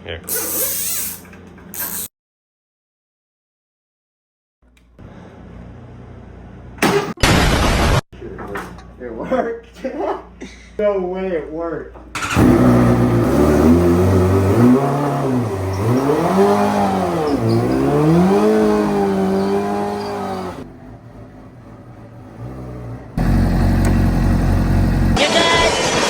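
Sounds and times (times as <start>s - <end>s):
motorcycle engine revving: 12.2s - 25.2s
steady low engine sound: 20.6s - 25.2s.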